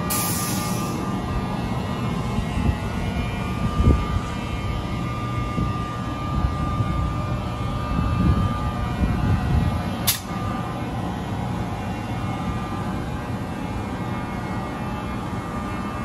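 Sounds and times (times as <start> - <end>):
electric train rumbling: 0.0 - 16.0
thin high whine: 0.0 - 16.0
sharp click: 10.0 - 10.3.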